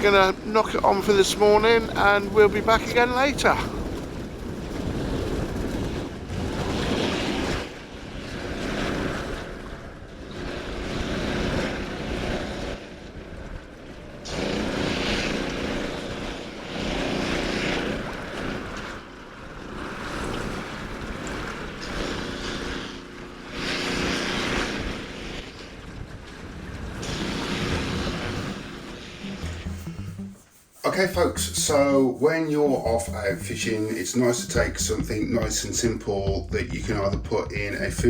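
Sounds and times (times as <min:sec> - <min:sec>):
wind buffeting microphone: 0:00.0 - 0:29.4
sea water washing: 0:00.0 - 0:38.0.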